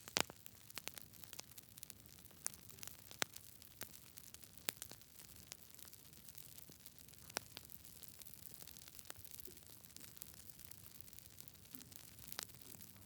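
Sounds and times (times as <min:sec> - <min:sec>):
sharp pops: 0:00.0 - 0:00.4
soft hiss: 0:00.0 - 0:00.4
wood fire crackling: 0:00.0 - 0:13.0.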